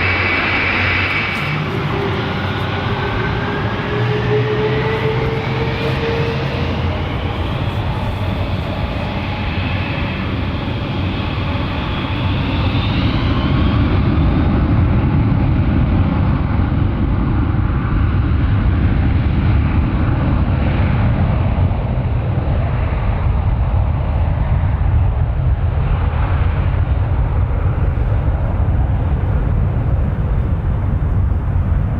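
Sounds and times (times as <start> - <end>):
jet engines spooling up: 0.0 - 17.1.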